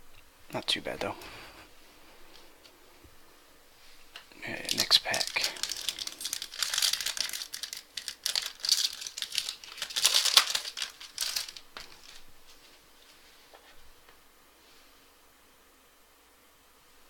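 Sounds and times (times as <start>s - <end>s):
foil wrapper tearing and crinkling: 4.5s - 12.3s.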